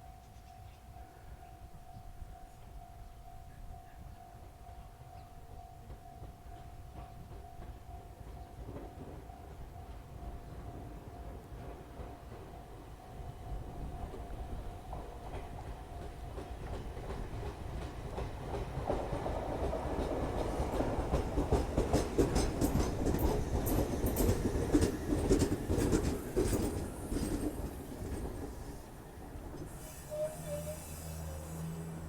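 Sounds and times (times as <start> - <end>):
clickety-clack over rail joints: 5.8 - 30.7
train wheels rumbling: 5.8 - 32.0
brake squeal: 29.7 - 32.0.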